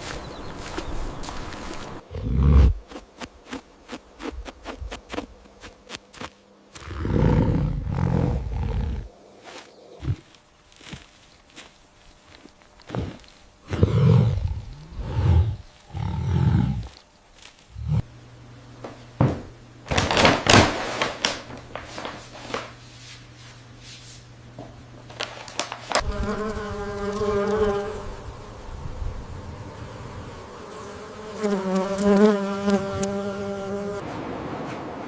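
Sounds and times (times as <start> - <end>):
steady low hum: 1.3 - 19.9.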